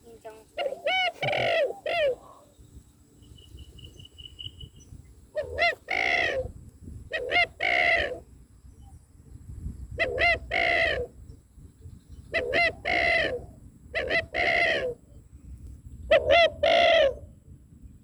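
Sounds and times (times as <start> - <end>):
waterhen calling: 0.6 - 2.4.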